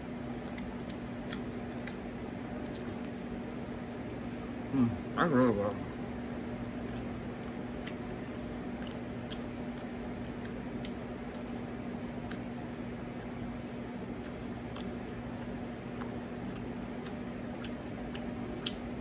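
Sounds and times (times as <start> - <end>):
steady low hum: 0.0 - 19.0
person chewing with wet mouth clicks: 0.4 - 3.3, 6.8 - 13.4, 14.1 - 19.0.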